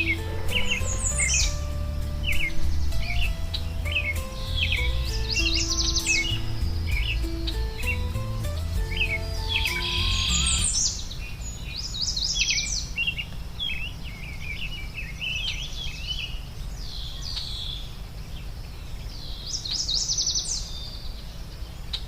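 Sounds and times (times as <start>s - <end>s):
low background rumble: 0.0s - 12.1s
songbirds singing: 0.0s - 22.0s.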